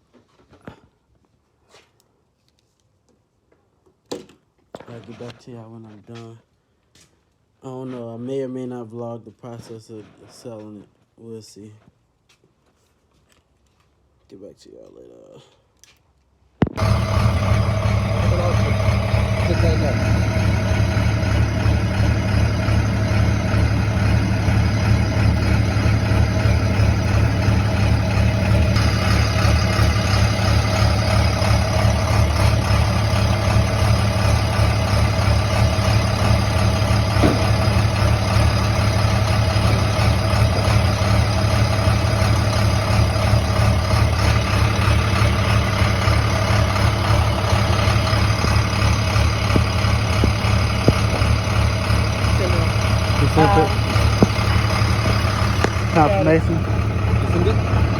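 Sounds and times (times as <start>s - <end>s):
vehicle engine humming: 16.6s - 57.9s.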